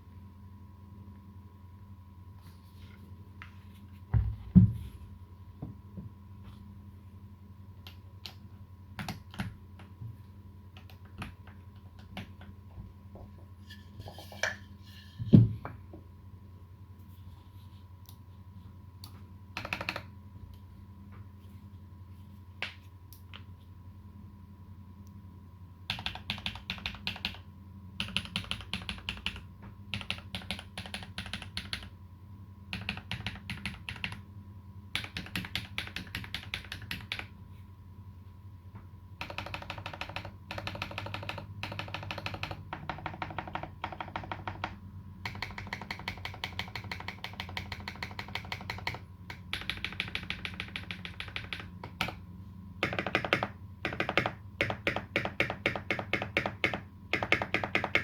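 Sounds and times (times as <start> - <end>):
mechanical keyboard typing: 9.0 - 9.9, 10.8 - 12.5, 19.6 - 20.1, 25.9 - 27.4, 28.0 - 31.9, 32.7 - 34.2, 34.9 - 37.3, 39.2 - 52.2, 52.8 - 58.0.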